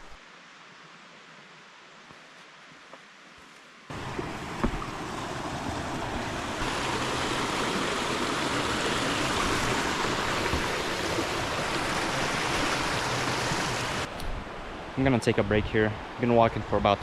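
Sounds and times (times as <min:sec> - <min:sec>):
river water rushing over rocks: 0:03.9 - 0:15.0
light knock: 0:04.6 - 0:04.9.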